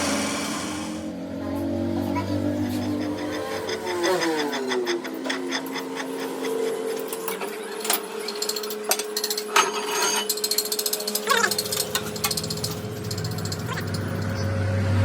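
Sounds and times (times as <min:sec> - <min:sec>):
steady machine hum: 0:00.0 - 0:15.0
metal knocks and clinks: 0:02.6 - 0:14.4
rapid clicking: 0:10.4 - 0:14.5.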